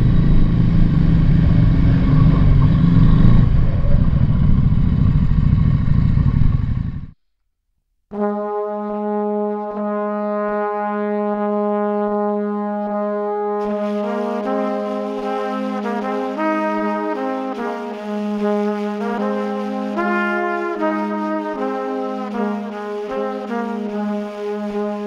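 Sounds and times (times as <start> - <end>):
wind noise on microphone: 0.0 - 7.1
motorcycle running: 0.0 - 7.2
brass music with held chords: 8.1 - 25.0.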